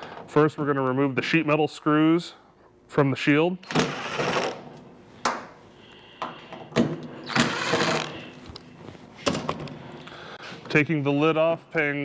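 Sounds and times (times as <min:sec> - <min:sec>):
power screwdriver running: 0:03.6 - 0:04.6, 0:07.2 - 0:08.1.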